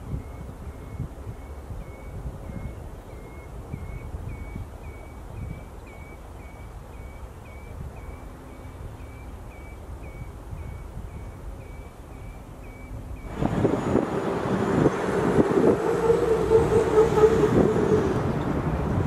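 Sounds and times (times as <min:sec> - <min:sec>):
low wind rumble: 0:00.0 - 0:19.0.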